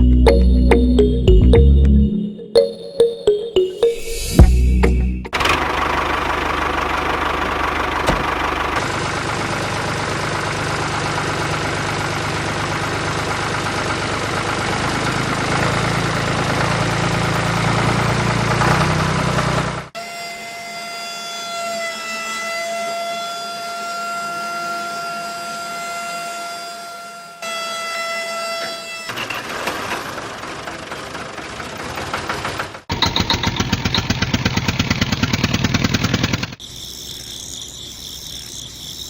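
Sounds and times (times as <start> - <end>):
engine rumbling: 0.0 - 2.4, 4.0 - 20.0, 29.6 - 36.6.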